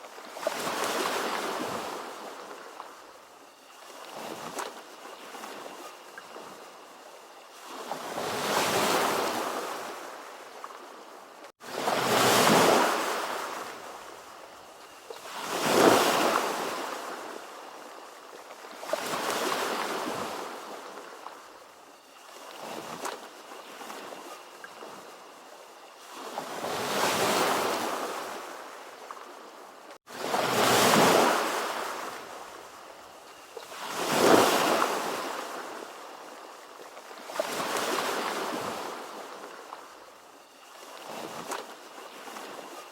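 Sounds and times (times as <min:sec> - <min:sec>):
ocean waves breaking: 0:11.6 - 0:14.2, 0:30.1 - 0:32.7.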